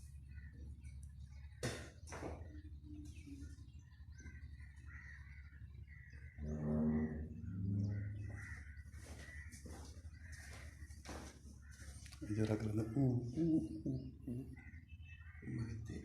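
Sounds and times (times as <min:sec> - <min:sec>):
faint high bird chirps: 0:00.0 - 0:08.4
low drawn-out bird calls: 0:00.0 - 0:16.0.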